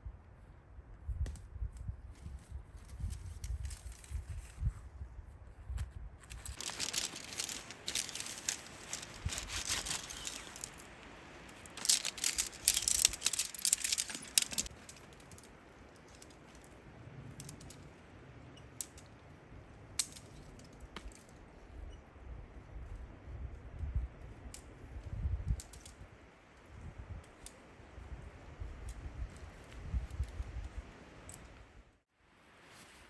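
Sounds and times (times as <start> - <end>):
rapid rustling: 6.2 - 16.5
light clinking: 6.3 - 17.9.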